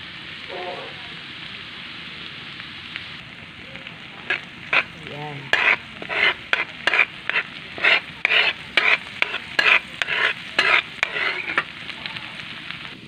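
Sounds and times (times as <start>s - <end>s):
garlic sizzling in butter: 0.0s - 13.0s
utensil scraping pan: 4.2s - 11.9s.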